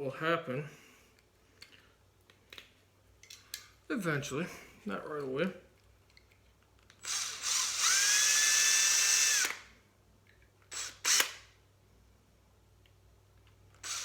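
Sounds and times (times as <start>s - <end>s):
power drill motor whining: 7.0s - 9.7s, 10.7s - 11.5s, 13.8s - 14.0s.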